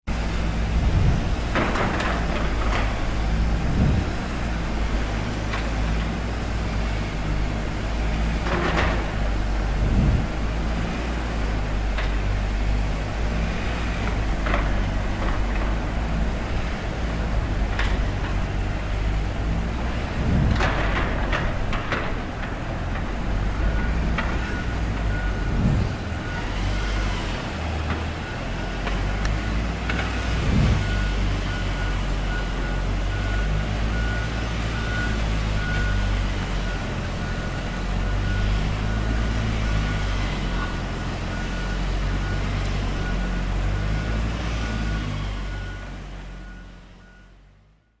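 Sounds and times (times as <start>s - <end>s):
heavy vehicle engine running: 0.1s - 48.0s
reversing alarm beeping: 23.5s - 48.0s.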